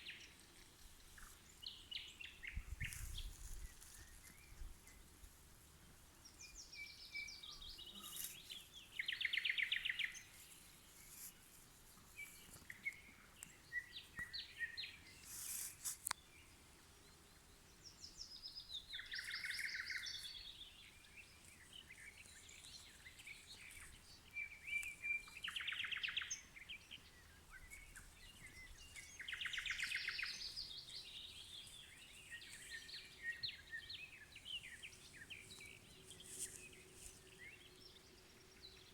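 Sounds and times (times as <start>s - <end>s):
nightingale singing: 6.3s - 10.5s, 12.1s - 15.3s, 16.0s - 38.9s.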